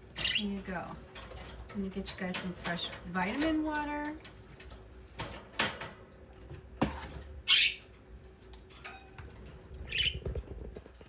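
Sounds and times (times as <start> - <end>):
parrot squawking: 7.4 - 7.9.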